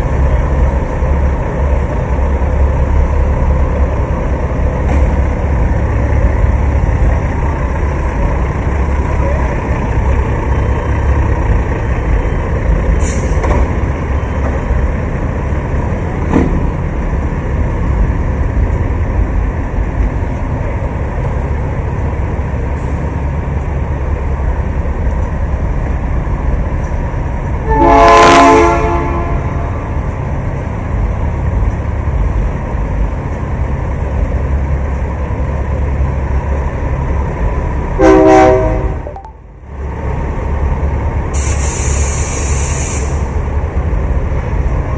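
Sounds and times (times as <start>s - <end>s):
low engine rumble: 0.0s - 44.9s
truck air horn blasts: 27.6s - 29.8s, 38.0s - 39.2s.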